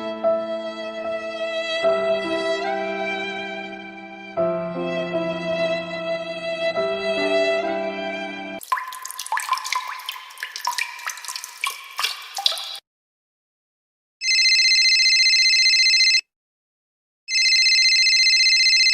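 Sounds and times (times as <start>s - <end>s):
water dripping and plinking: 8.6s - 12.8s
electronic telephone ring: 14.2s - 16.2s, 17.3s - 18.9s.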